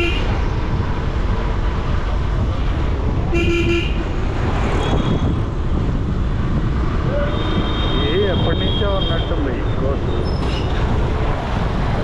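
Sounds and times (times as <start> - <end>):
city road traffic rumble: 0.0 - 12.0
vehicle horn toots: 3.4 - 4.0.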